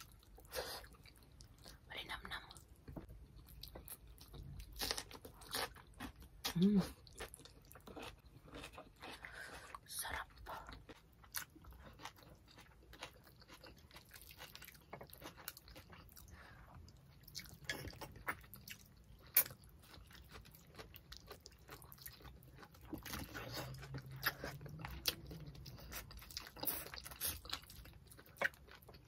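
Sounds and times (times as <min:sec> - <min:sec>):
wet chewing: 0:10.7 - 0:29.0.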